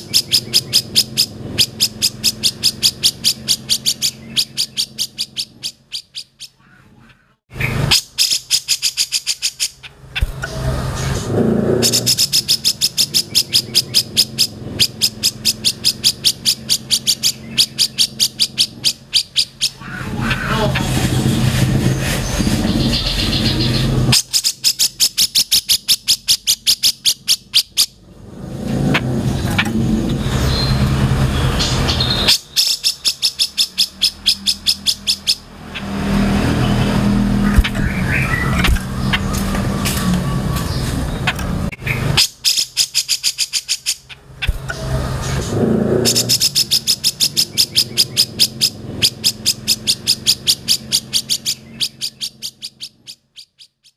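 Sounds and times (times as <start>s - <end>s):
bird calling sharp high notes: 0.0s - 21.0s, 28.8s - 53.8s
low traffic hum: 0.0s - 53.8s
bird rattling call: 7.6s - 28.0s, 31.7s - 39.5s.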